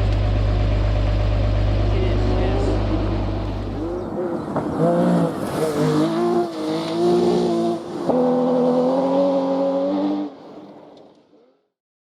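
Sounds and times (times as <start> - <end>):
rally car engine accelerating: 0.0 - 11.6.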